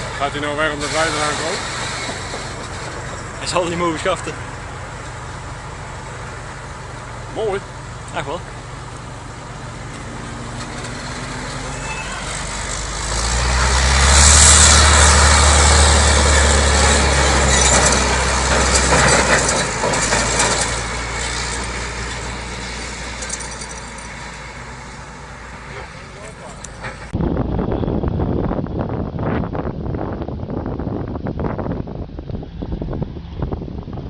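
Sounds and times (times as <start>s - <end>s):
truck diesel engine passing: 0.0s - 27.2s.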